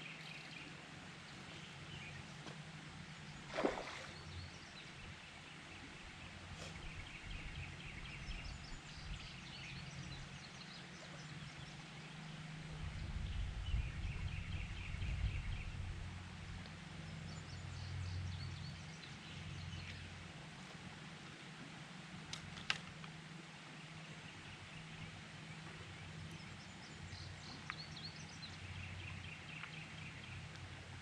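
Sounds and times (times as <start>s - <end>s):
birds chirping: 24.3s - 30.6s.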